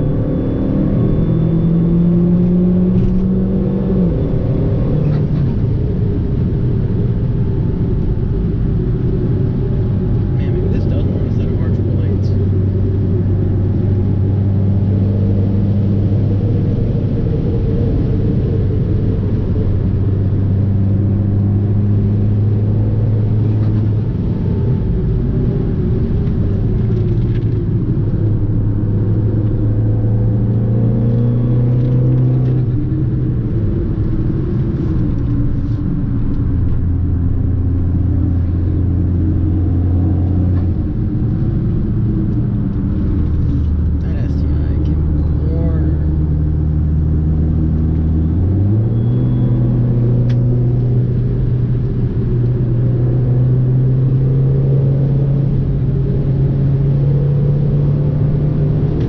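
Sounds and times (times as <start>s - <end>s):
car engine pulling: 21.0s - 59.0s.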